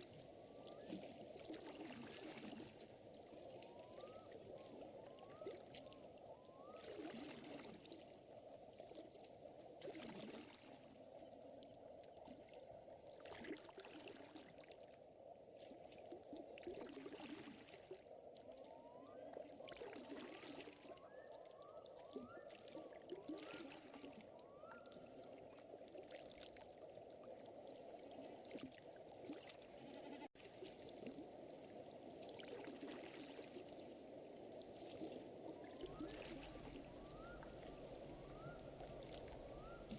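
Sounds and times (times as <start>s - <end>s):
lake water lapping: 0.0s - 11.2s, 22.0s - 39.9s.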